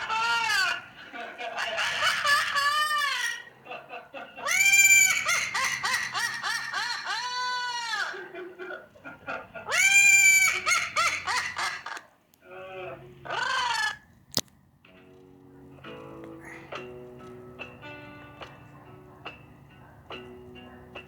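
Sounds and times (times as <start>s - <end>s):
bird squawking loudly: 0.0s - 3.7s, 4.4s - 12.1s, 12.9s - 14.2s.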